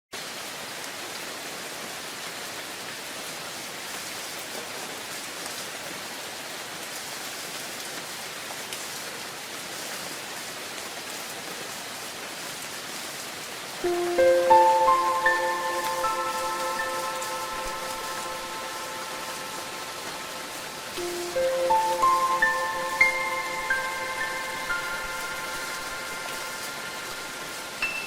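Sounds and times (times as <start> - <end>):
steady rainfall: 0.1 - 28.0
ringing chime notes: 13.8 - 28.0.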